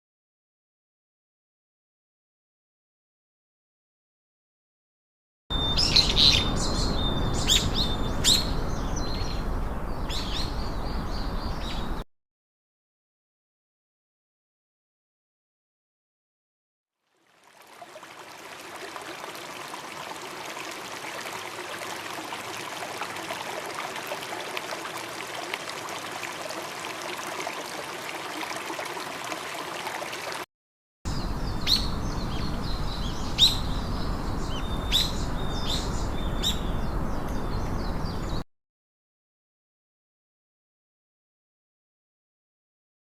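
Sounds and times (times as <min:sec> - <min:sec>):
rushing water: 0:17.0 - 0:30.5.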